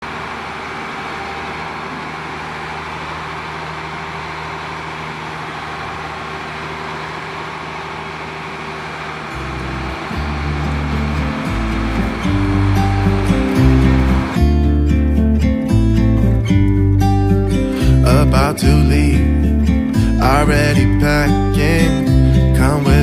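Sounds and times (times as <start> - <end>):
road noise: 0.0 - 23.0
vehicle engine hum: 0.0 - 23.0
music with deep bass line: 9.3 - 23.0.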